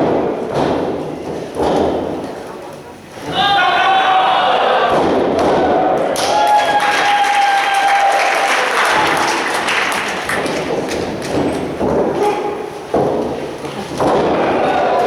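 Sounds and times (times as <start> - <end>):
crowd clapping and cheering: 5.7 - 12.7.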